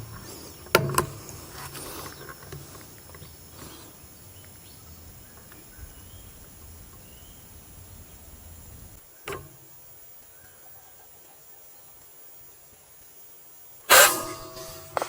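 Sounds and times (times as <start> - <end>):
faint bird chirps: 3.1 - 13.0.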